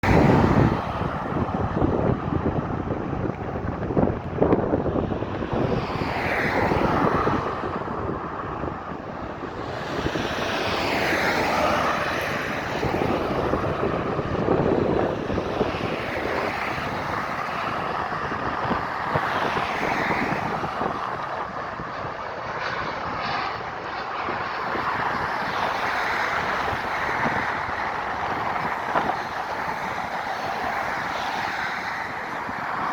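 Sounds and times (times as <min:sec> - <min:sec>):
airplane engines roaring: 0:00.0 - 0:32.9.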